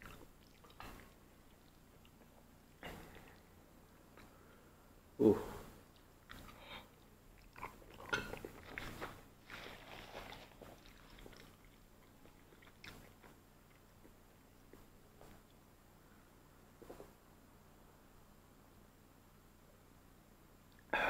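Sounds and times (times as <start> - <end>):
person chewing: 0.0 - 3.5, 5.9 - 15.6.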